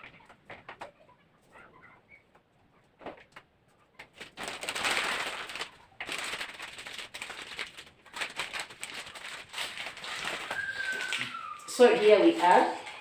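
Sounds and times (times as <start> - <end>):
newspaper crinkling and rustling: 4.0 - 13.0.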